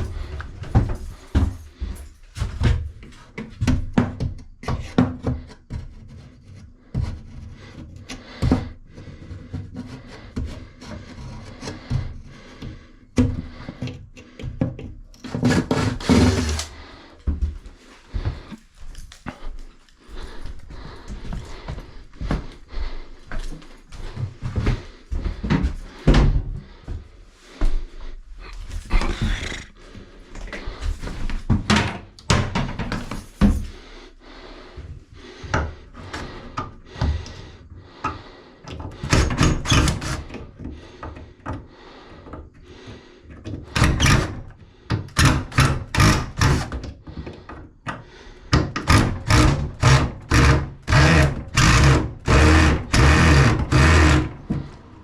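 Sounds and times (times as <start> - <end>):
irregular knocks and thuds: 0.0 - 6.0, 6.8 - 15.9, 16.8 - 18.6, 20.2 - 27.9, 30.0 - 33.9.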